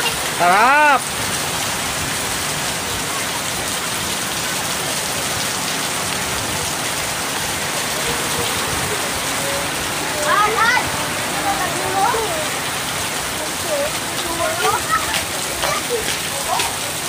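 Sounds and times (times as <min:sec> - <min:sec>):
heavy rain on concrete: 0:00.0 - 0:17.0.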